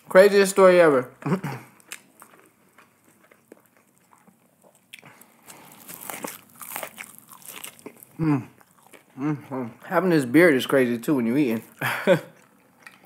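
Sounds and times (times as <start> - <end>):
crunchy chewing: 1.6 - 9.9, 11.6 - 13.0
crunchy bite into fried food: 1.7 - 9.1.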